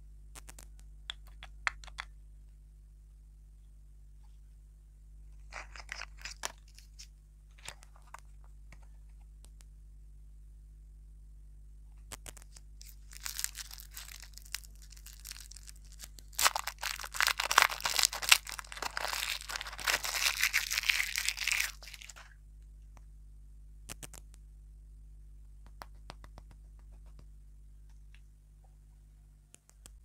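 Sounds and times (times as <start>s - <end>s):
lollipop wrapper crinkling: 5.4s - 8.2s, 12.2s - 22.3s.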